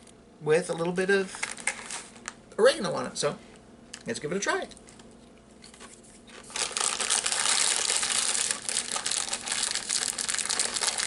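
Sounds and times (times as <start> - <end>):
potato chips crunching: 6.4 - 11.0.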